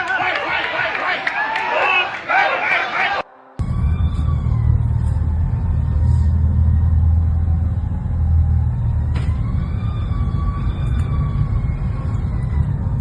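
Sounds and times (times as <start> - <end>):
vehicle engine rumbling: 3.6 - 13.0.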